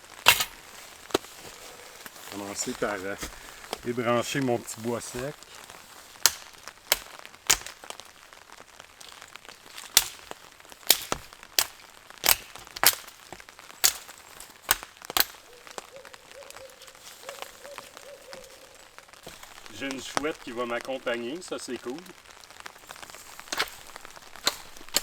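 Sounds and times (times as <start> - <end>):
dry branches snapping: 0.0 - 25.0
owl hooting faintly: 15.4 - 20.0.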